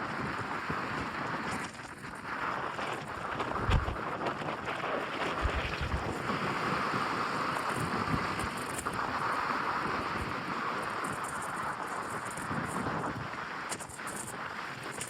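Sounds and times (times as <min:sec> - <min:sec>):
wind blowing over microphone: 0:00.0 - 0:15.0.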